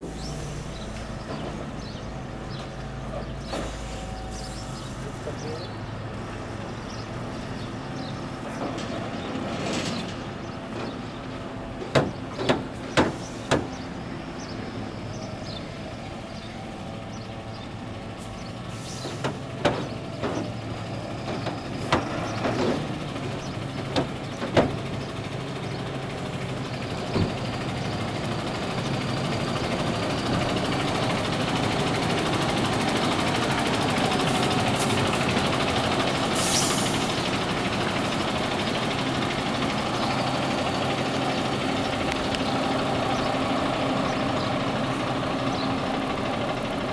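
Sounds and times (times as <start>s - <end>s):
diesel truck engine running: 0.0s - 46.9s.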